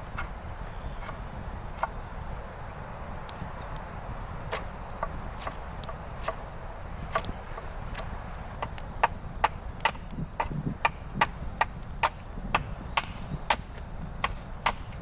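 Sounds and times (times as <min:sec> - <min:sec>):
low wind rumble: 0:00.0 - 0:15.0
chopping wood: 0:07.1 - 0:15.0.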